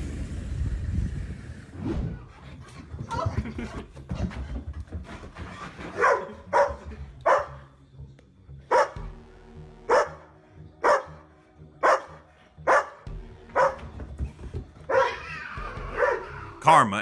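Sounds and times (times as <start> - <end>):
background music: 5.8 - 17.0
dog barking: 6.0 - 7.7, 8.7 - 9.1, 9.9 - 13.0, 13.6 - 13.9, 14.9 - 15.2, 15.9 - 16.5.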